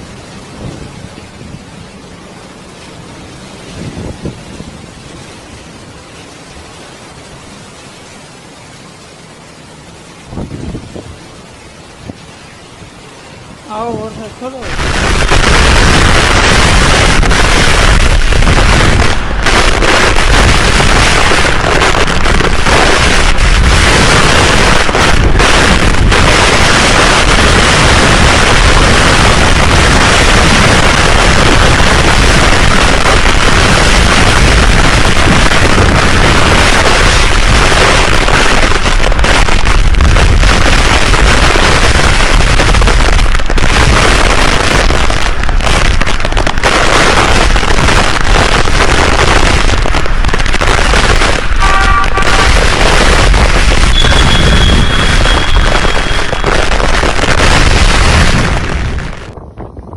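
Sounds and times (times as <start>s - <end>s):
wind buffeting microphone: 3.6s - 5.0s, 10.2s - 11.2s, 13.7s - 59.9s.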